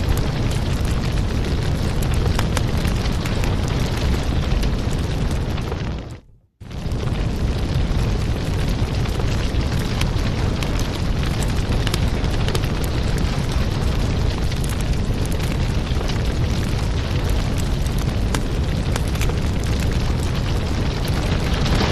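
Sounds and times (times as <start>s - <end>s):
fireplace fire crackling: 0.0s - 21.9s
low rumble of fire: 0.0s - 21.9s.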